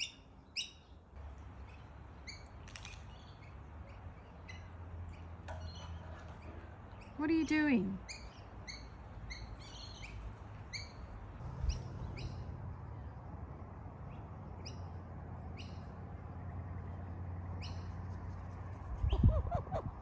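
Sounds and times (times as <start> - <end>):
bird chirping: 3.1 - 12.5
low steady hum: 11.4 - 20.0.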